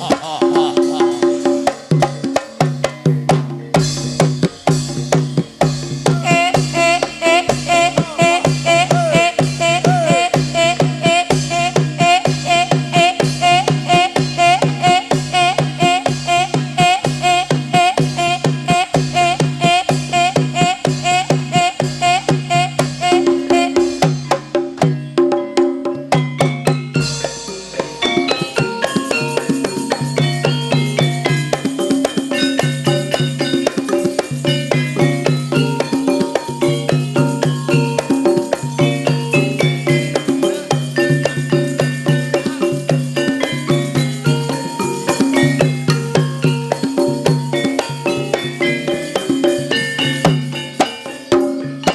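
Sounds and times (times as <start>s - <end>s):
person singing: 0.0s - 1.9s, 6.0s - 24.2s
gamelan struck tuned notes: 0.0s - 51.9s
hand drum strokes: 0.0s - 51.9s.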